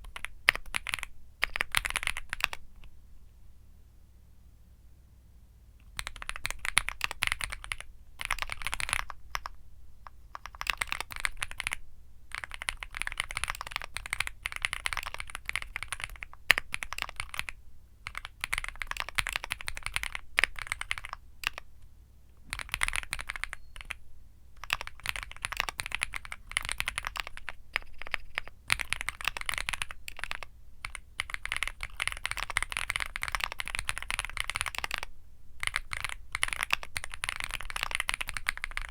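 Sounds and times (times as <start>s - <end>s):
mechanical keyboard typing: 0.0s - 2.6s, 5.8s - 9.6s, 10.3s - 21.7s, 22.5s - 24.0s, 24.6s - 38.9s.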